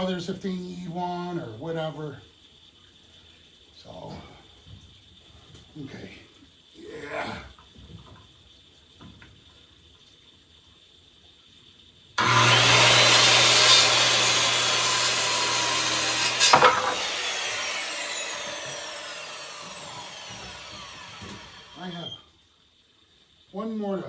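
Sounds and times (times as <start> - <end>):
electric chop saw cutting wood: 12.2 - 22.2
saw blade spinning down whine: 12.2 - 22.2.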